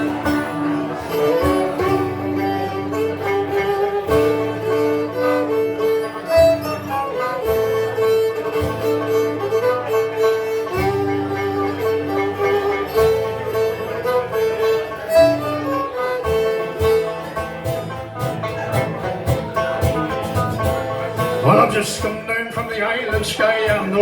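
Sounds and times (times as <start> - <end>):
melody in long held notes: 0.0 - 22.3
banjo: 0.0 - 24.0
strummed guitar: 0.0 - 24.0.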